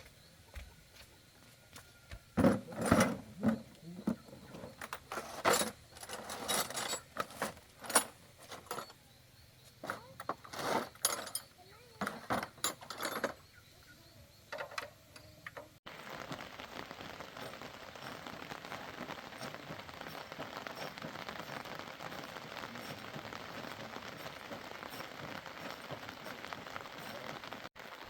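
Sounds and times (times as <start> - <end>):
dense patter like rain: 15.9 - 28.0.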